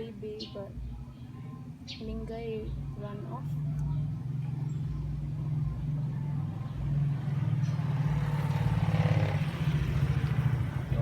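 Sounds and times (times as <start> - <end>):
motor vehicle engine drone: 2.6 - 11.0.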